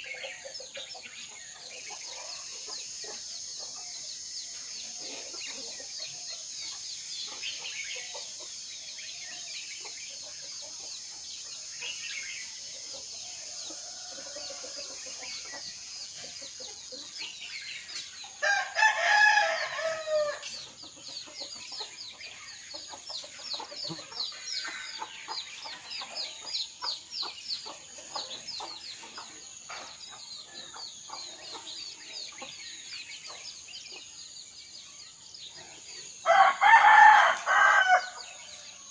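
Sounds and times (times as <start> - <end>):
songbirds chirping: 0.0 - 38.9
rooster crowing: 18.4 - 20.4, 36.3 - 38.2.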